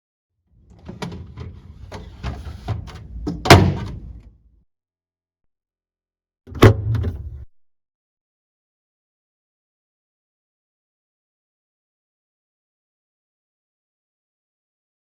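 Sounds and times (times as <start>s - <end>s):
plastic shelf clicks and knocks: 0.8s - 4.3s.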